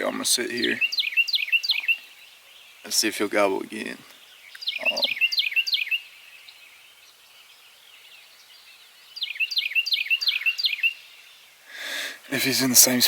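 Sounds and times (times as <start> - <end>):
songbird whistling: 0.7 - 2.5, 4.2 - 11.4.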